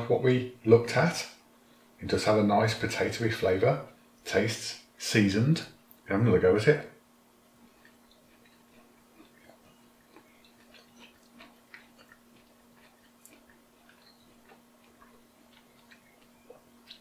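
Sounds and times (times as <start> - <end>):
steady low hum: 0.0 - 17.0
chewing crispy potato: 7.6 - 17.0.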